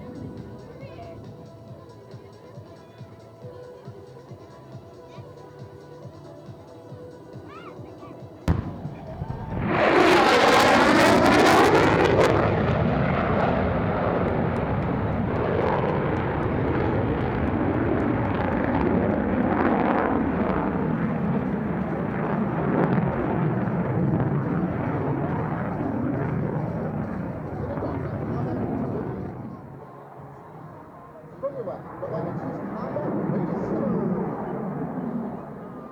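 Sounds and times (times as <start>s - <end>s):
jet passing with roar: 8.4s - 35.9s.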